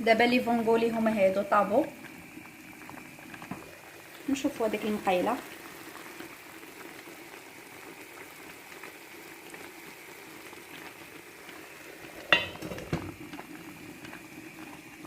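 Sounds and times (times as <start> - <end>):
food sizzling in pans: 0.0 - 15.0
metallic clink of cookware: 12.3 - 13.0.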